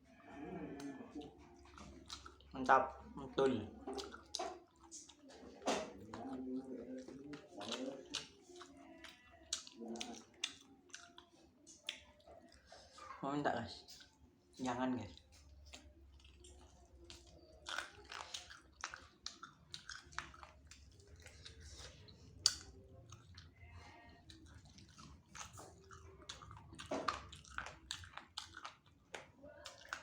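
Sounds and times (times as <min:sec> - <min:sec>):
chewing and biting: 0:00.0 - 0:30.0
mouth clicks and smacks: 0:03.8 - 0:13.2, 0:15.1 - 0:23.6.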